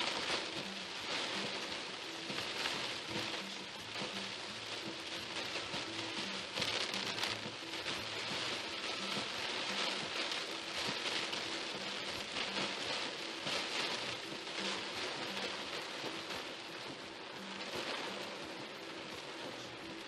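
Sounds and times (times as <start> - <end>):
heavy rain on a car: 0.0 - 20.0.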